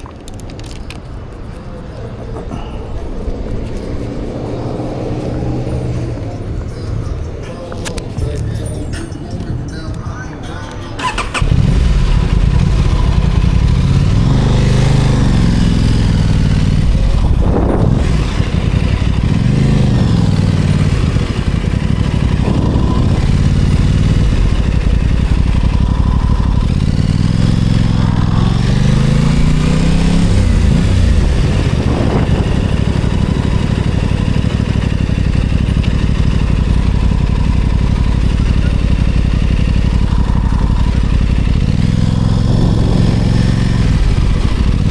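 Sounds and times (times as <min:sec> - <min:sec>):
motorcycle engine revving: 0:11.0 - 0:44.9.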